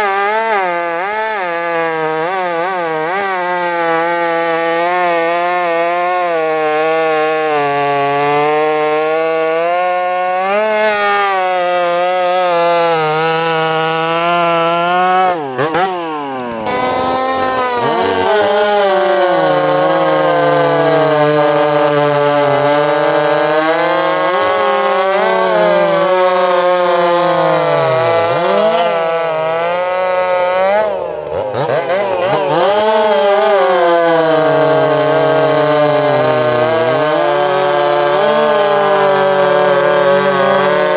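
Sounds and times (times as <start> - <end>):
chainsaw running at high revs: 0.0 - 40.9.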